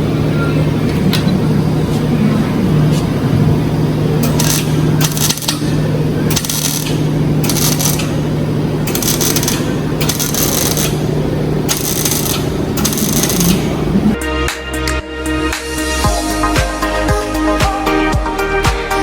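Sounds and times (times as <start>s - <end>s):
steady low hum: 0.0s - 14.2s
welding bursts on metal: 4.2s - 14.2s.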